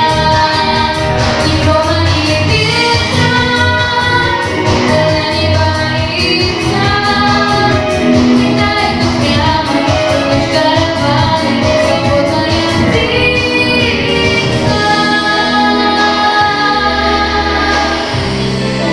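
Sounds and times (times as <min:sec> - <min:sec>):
girl singing a pop song: 0:00.0 - 0:18.3
backing track with steady beat: 0:00.0 - 0:18.9.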